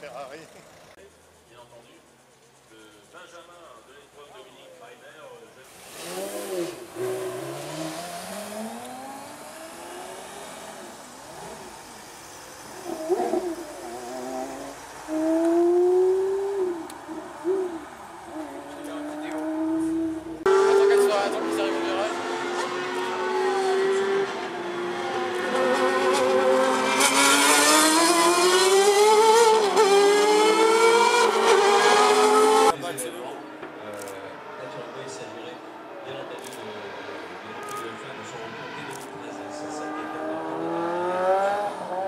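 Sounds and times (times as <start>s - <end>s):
car engine accelerating: 5.7s - 32.8s, 36.2s - 42.0s.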